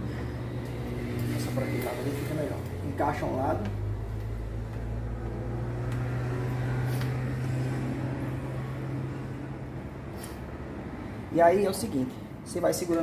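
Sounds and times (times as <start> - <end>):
low mechanical hum: 0.0 - 11.4.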